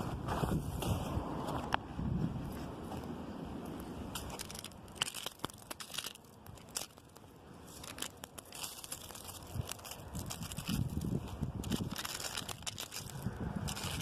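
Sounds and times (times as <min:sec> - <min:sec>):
wind rumble on microphone: 0:00.0 - 0:04.3, 0:09.1 - 0:14.0
wind rustling tree branches: 0:00.0 - 0:14.0.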